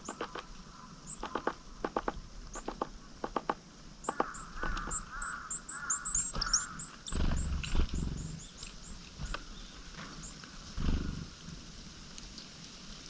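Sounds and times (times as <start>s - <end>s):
hoarse bird calls: 0.0s - 11.4s
small birds chirping: 0.0s - 11.5s
low rustling noise: 6.9s - 13.0s.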